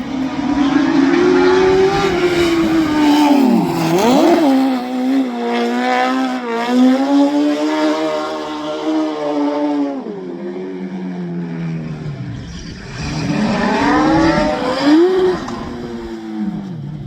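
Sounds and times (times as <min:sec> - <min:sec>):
truck engines accelerating: 0:00.0 - 0:07.7.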